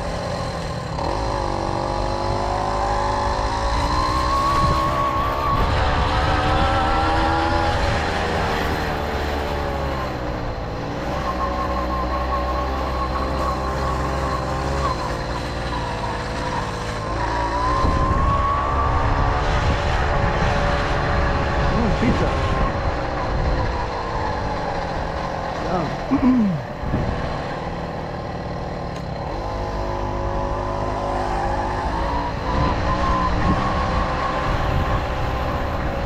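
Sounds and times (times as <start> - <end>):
moped engine running: 21.6 - 32.2.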